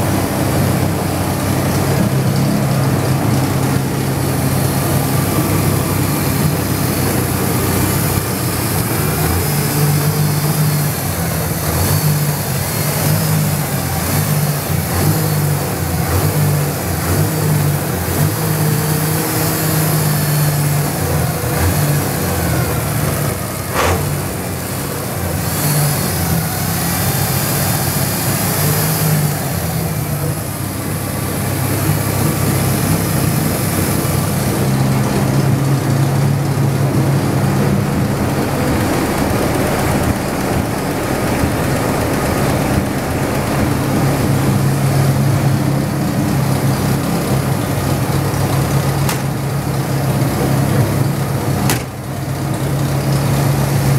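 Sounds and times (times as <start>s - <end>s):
car engine idling loudly: 0.0s - 53.9s.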